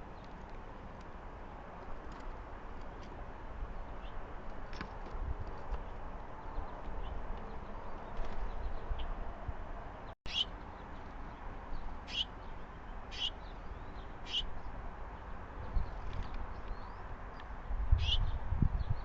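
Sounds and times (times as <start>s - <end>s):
faint bird chirps: 10.3s - 10.5s, 13.1s - 14.5s.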